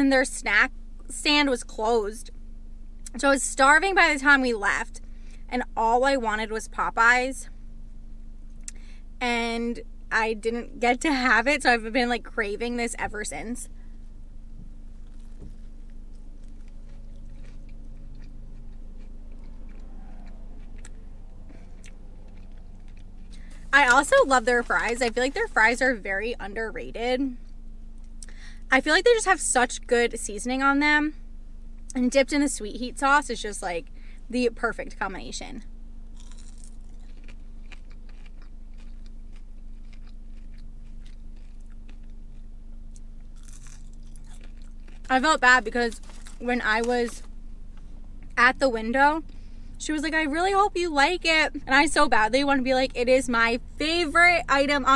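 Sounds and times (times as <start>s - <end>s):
steady low hum: 0.0s - 54.9s
chewing with crunches: 14.9s - 26.0s, 36.1s - 48.4s.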